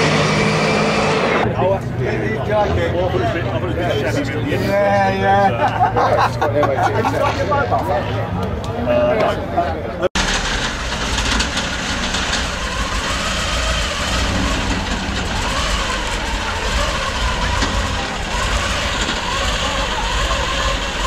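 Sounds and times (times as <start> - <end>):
engine idling with deep rumble: 10.1 - 21.0.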